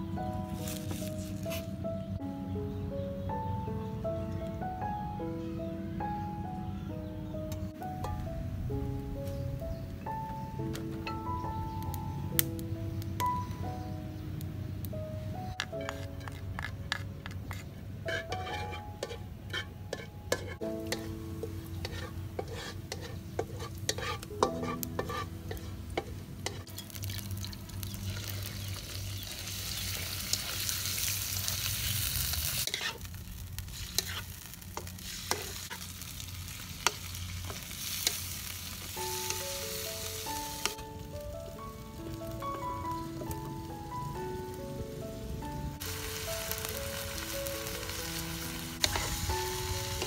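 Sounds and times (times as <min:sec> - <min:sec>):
utensils clicking and scraping pan: 0:15.6 - 0:30.7, 0:32.6 - 0:33.1, 0:33.7 - 0:35.9, 0:36.8 - 0:38.3, 0:48.8 - 0:49.3
hissing sizzle in a wok: 0:19.9 - 0:43.7, 0:45.8 - 0:50.0.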